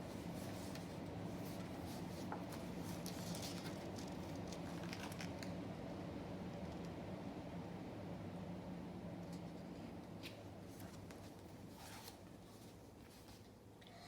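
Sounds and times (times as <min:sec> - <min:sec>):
steady low hum: 0:00.0 - 0:14.0
paper pages rustling: 0:00.2 - 0:05.4, 0:10.2 - 0:13.5.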